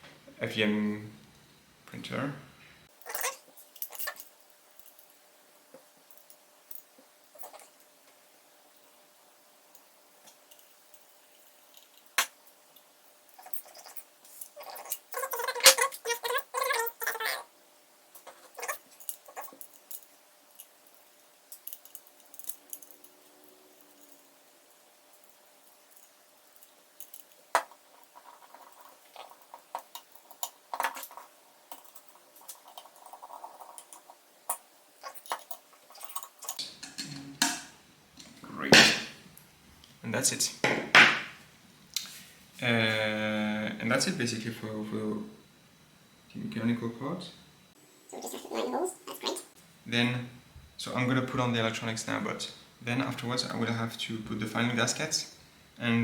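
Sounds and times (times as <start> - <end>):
parts scraping and rattling: 18.2 - 39.0.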